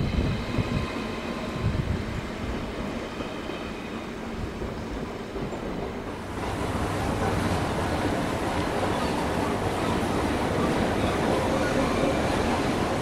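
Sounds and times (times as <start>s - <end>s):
electric train rumbling: 0.0s - 13.0s
hissy rushing noise: 6.0s - 13.0s.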